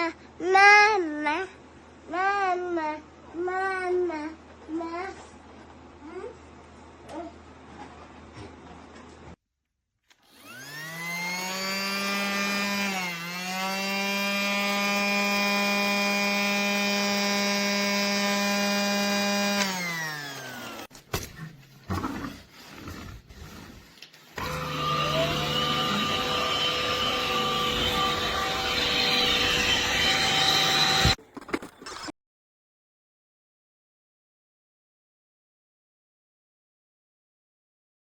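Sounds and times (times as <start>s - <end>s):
small electric motor whining: 10.2s - 20.9s, 23.4s - 31.2s
steady motor hum: 24.4s - 31.2s.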